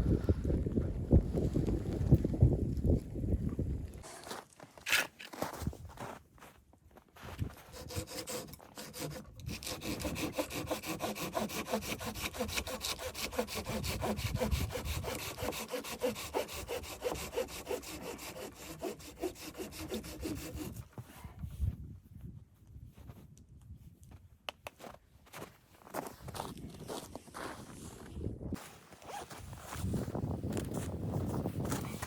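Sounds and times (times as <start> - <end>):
hand saw cutting wood: 7.5 - 20.9.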